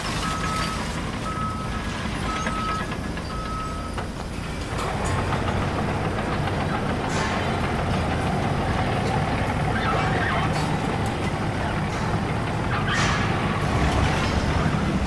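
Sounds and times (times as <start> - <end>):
backup alarm beeping: 0.0 - 4.0.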